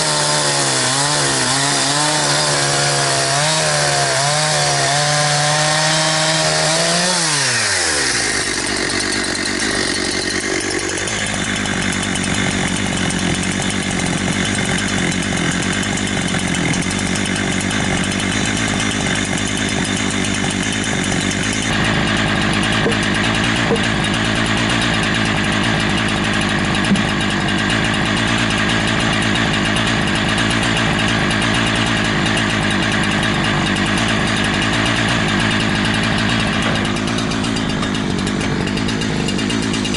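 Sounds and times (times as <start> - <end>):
chainsaw running: 0.0 - 39.9.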